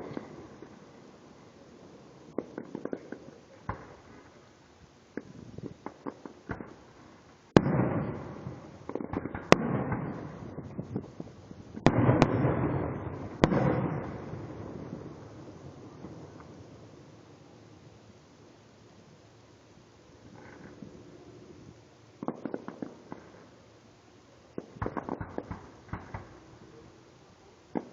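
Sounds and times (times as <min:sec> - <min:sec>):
fireworks crackling pops: 0:00.0 - 0:18.6, 0:19.8 - 0:23.8, 0:24.4 - 0:27.9
fireworks loud bangs: 0:07.5 - 0:16.6, 0:24.5 - 0:26.4.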